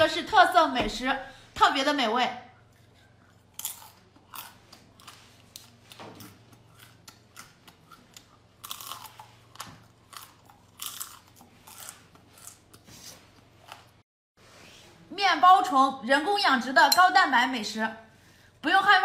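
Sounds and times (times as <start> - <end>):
person chewing crunchy food: 2.6 - 14.0.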